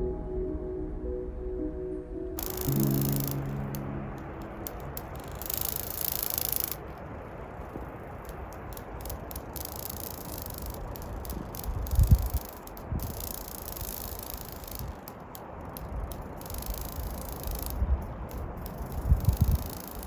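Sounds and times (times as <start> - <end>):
music held notes: 0.0 - 6.3
steady outdoor hiss: 0.0 - 20.0
short clicks and rattles: 8.2 - 20.0.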